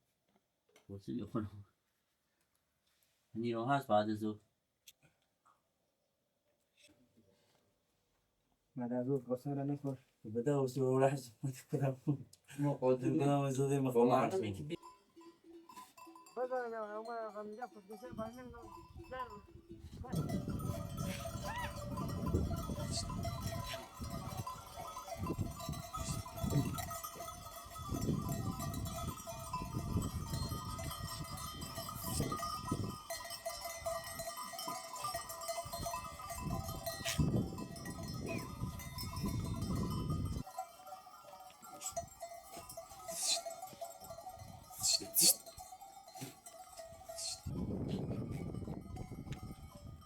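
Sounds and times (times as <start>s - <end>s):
sheep bells ringing: 13.0s - 50.0s
sheep bleating: 43.1s - 43.5s.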